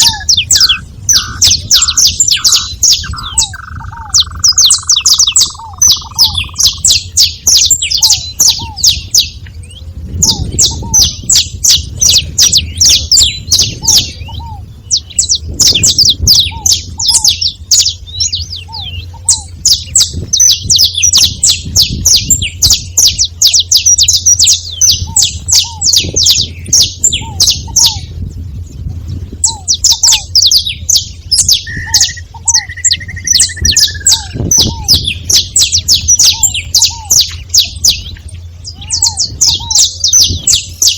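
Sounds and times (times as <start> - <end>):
finches singing: 0.0 - 40.9
low hum: 0.0 - 40.9.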